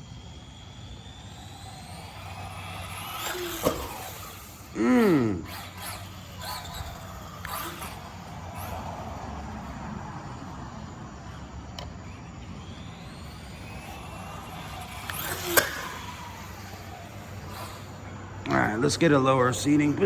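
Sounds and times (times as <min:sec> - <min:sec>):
low hum: 0:00.0 - 0:18.8
toy car motor whining: 0:00.0 - 0:20.0.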